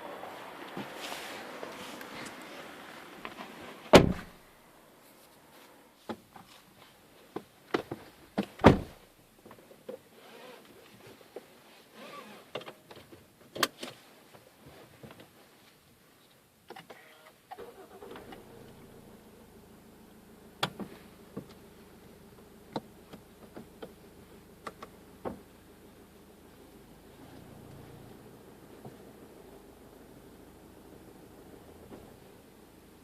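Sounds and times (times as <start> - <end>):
rustling: 0.2 - 9.0
loud thump: 3.9 - 4.4, 8.5 - 9.0
diesel engine cranking and idling: 17.5 - 33.0.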